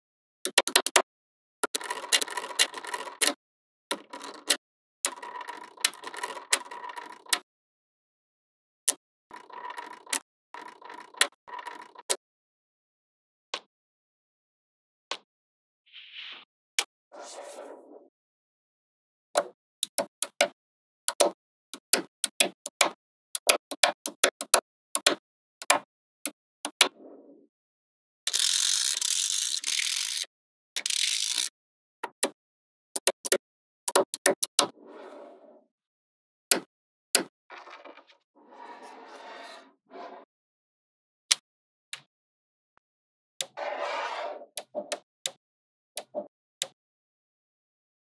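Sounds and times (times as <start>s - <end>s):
magnetic balls clicking together: 28.3s - 31.5s.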